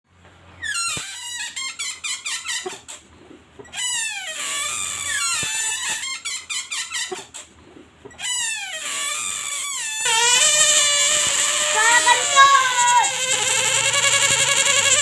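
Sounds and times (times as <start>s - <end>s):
rubber balloon squeaking: 0.5s - 3.0s, 3.6s - 7.5s, 8.1s - 15.0s.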